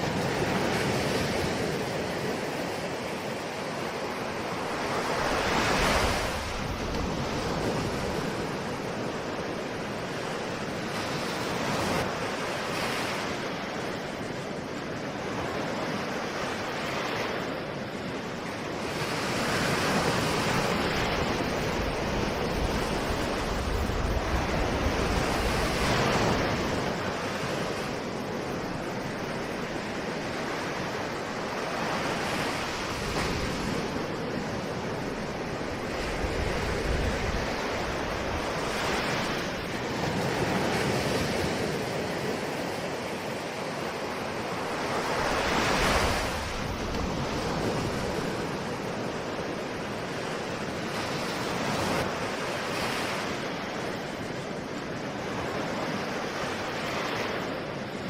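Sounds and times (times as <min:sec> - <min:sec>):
ocean waves washing in: 0:00.0 - 0:58.0.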